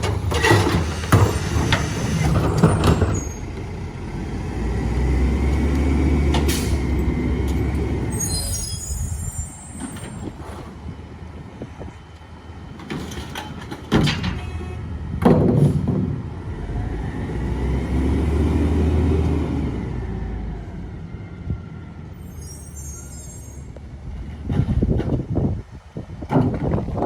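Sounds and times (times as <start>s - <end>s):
garbage truck engine revving: 0.0s - 10.8s, 15.6s - 21.0s.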